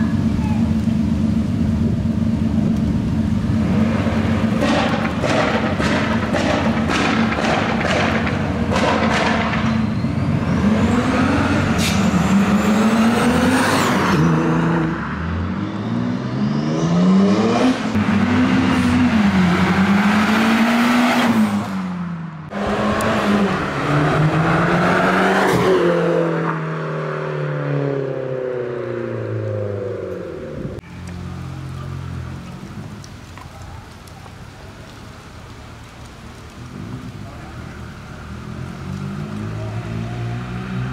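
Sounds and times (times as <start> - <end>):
car engine revving: 1.2 - 30.8
sharp cracks: 4.3 - 9.8.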